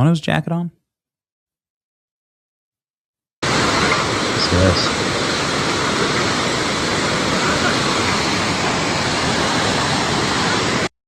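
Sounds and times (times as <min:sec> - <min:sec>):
torrent of rushing water: 0:03.4 - 0:10.9.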